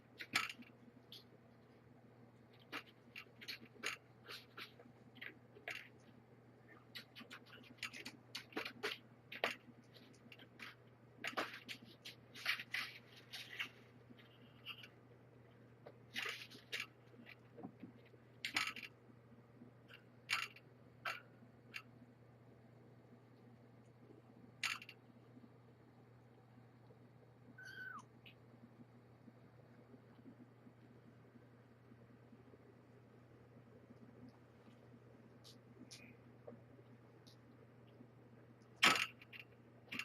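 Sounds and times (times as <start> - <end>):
kittens eating crunchy food: 0.0 - 19.0, 32.0 - 40.0
faint steady hum: 0.0 - 40.0.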